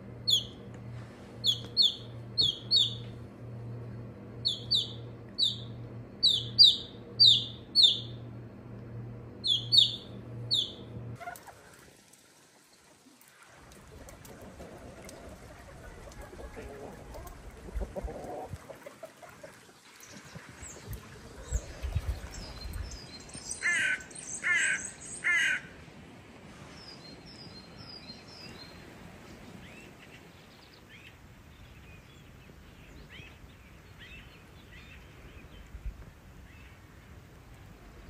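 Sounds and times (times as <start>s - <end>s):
small birds chirping faintly: 1.4s - 3.1s, 4.4s - 8.2s
large bird harsh calls: 23.4s - 25.7s.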